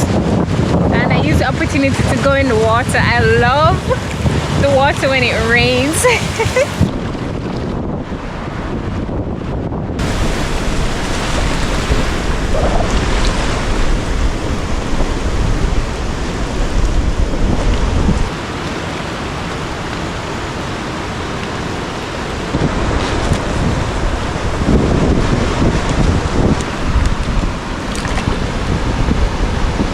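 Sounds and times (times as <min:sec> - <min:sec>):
pouring rain: 0:00.0 - 0:08.6, 0:10.0 - 0:29.9
surf: 0:00.0 - 0:29.9
wind buffeting microphone: 0:00.0 - 0:29.9
low rumble: 0:00.8 - 0:18.4.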